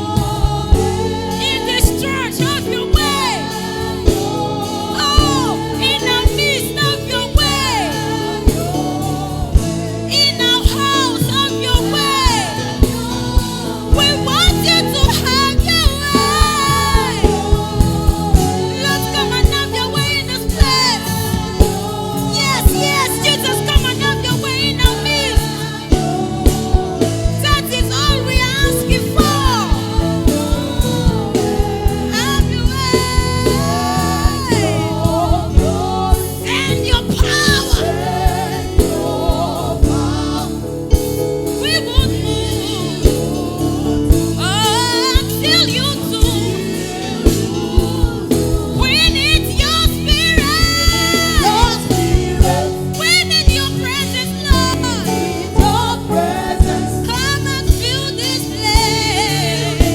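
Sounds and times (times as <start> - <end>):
keyboard chords: 0.0 - 59.9
singers with backing vocals: 0.0 - 59.9
steady drum beat: 0.0 - 59.9.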